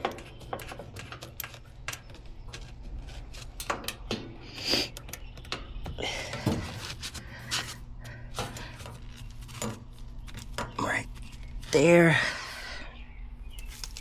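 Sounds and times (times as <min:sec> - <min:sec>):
metal tools clinking: 0:00.0 - 0:04.4, 0:13.5 - 0:14.0
steady low hum: 0:00.0 - 0:14.0.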